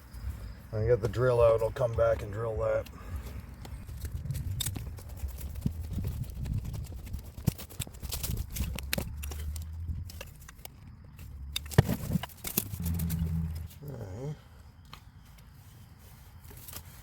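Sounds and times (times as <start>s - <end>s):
low steady hum: 12.5s - 14.5s.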